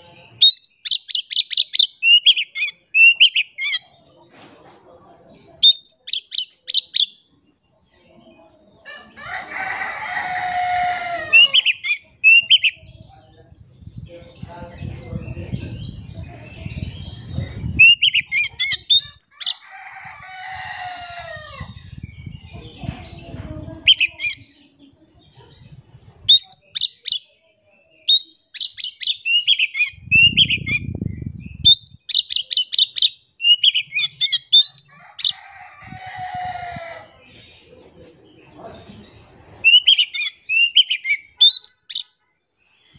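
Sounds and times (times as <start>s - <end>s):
bird singing whistled notes: 28.0s - 34.9s, 39.7s - 42.1s.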